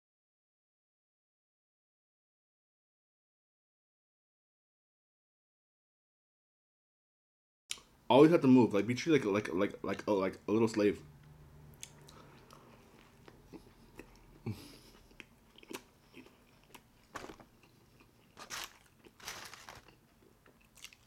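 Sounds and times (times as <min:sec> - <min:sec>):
close chewing with mouth smacks: 0:11.8 - 0:19.2, 0:20.2 - 0:21.0
soft crunches of food: 0:11.8 - 0:21.0.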